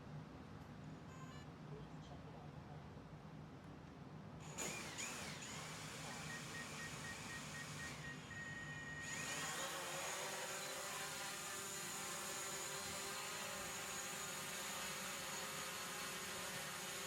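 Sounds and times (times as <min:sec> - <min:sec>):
small electric motor whirring: 0:04.5 - 0:08.3, 0:09.0 - 0:17.0.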